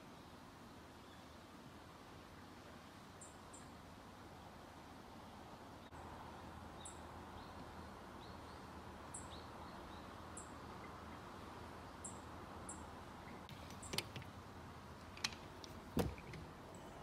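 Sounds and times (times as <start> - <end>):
outdoor background hiss: 0.0 - 17.0
small birds chirping: 5.7 - 17.0.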